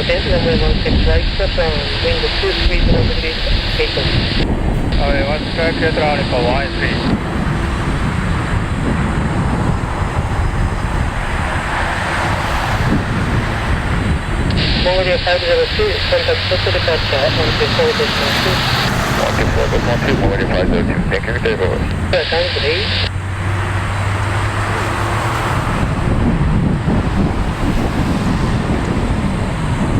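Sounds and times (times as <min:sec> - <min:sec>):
jet engines at takeoff power: 0:00.0 - 0:29.9.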